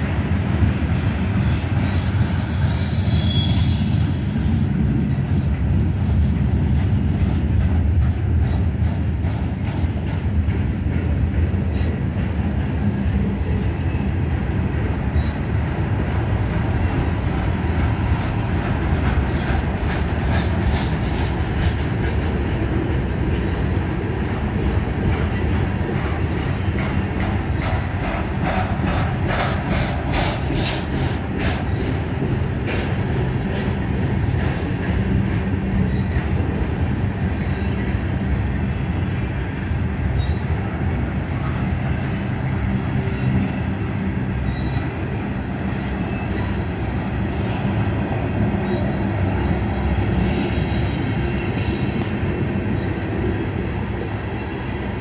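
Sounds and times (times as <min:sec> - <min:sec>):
train wheels rumbling on rail: 0:00.0 - 0:55.0
high wheel squeal: 0:02.9 - 0:04.2, 0:30.6 - 0:34.4, 0:44.4 - 0:45.0.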